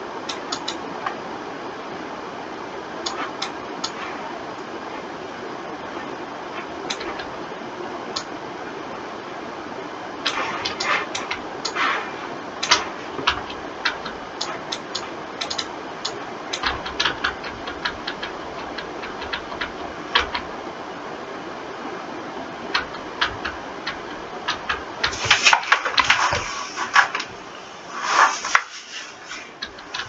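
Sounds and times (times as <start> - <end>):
mouse and keyboard clicking: 0.3 - 1.2, 3.0 - 4.0, 6.9 - 7.3, 10.2 - 11.9, 12.6 - 20.5, 22.7 - 27.3, 29.3 - 30.0
background hiss: 10.2 - 30.0.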